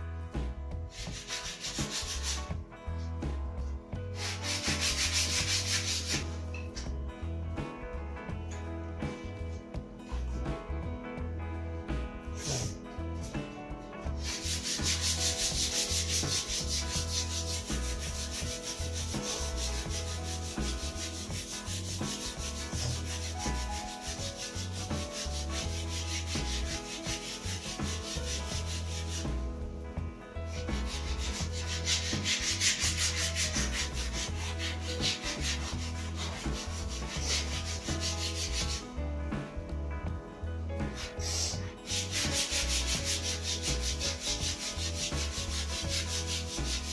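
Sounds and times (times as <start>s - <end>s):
sandpaper rubbing on wood: 0.9s - 2.5s, 4.2s - 6.4s, 12.4s - 12.8s, 14.2s - 29.4s, 30.5s - 38.8s, 40.9s - 46.9s.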